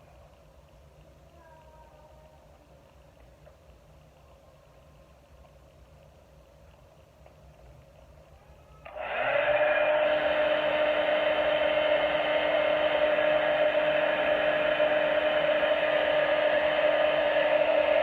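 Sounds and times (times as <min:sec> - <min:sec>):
small electric motor whirring: 0:08.8 - 0:18.0.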